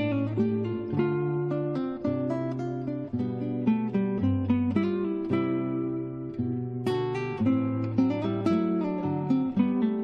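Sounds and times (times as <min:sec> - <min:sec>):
acoustic guitar chords: 0:00.0 - 0:10.0.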